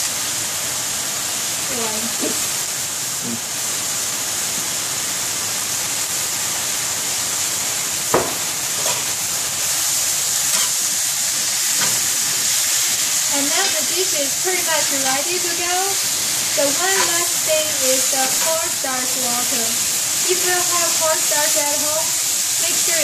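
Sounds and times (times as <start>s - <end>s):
cabbage sizzling in a skillet: 0.0s - 23.0s
sharp knocks: 8.2s - 8.4s
spatula scraping a skillet: 8.7s - 9.2s, 10.4s - 13.9s, 16.2s - 18.7s.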